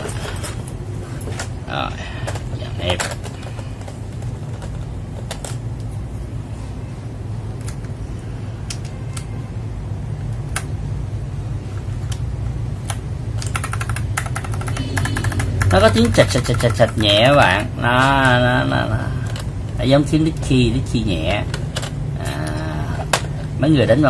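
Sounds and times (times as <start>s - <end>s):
steady low hum: 0.0s - 24.0s
mechanical keyboard typing: 2.2s - 5.9s, 11.9s - 19.5s.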